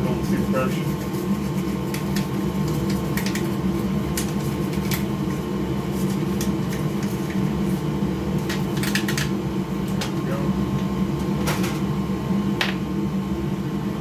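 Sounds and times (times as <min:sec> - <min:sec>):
fan humming: 0:00.0 - 0:14.0
toothbrush scratching: 0:00.2 - 0:09.2.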